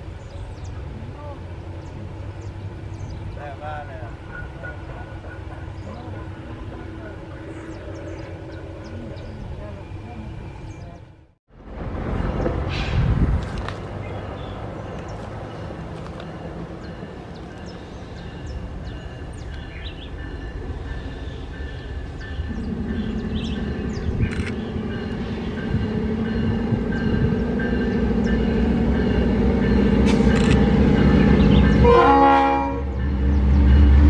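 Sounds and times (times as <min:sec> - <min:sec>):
locomotive rumble: 0:00.0 - 0:34.0
train horn: 0:26.4 - 0:34.0.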